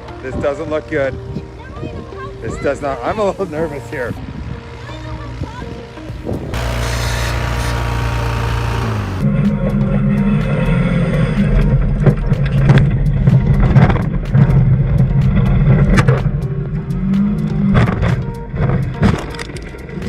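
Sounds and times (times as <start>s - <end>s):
car engine droning: 6.2s - 9.3s.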